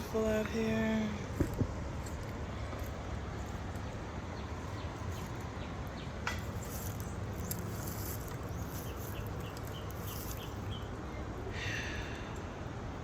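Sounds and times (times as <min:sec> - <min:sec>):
steady hiss and low rumble: 0:00.0 - 0:13.0
bird chirping: 0:04.3 - 0:11.2.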